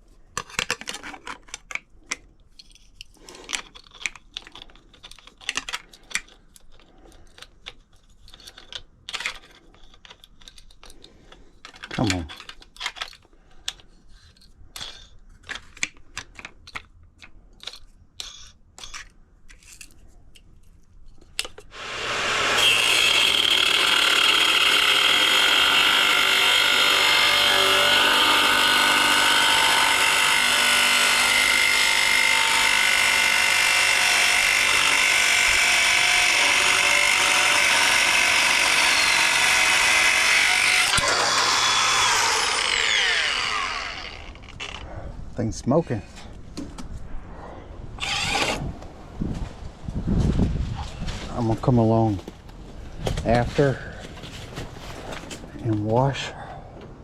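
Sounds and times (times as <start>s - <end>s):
motor whining at high speed: 35.6s - 44.8s.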